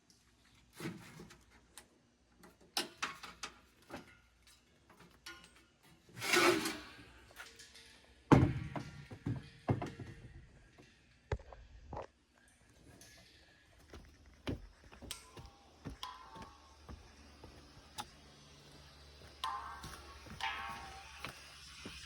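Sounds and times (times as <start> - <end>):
tools and parts clattering: 2.5 - 10.4.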